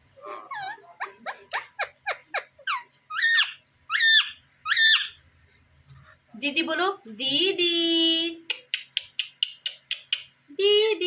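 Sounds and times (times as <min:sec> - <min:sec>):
parrot screeching: 0:00.2 - 0:05.2
parrot squawking: 0:00.2 - 0:05.2.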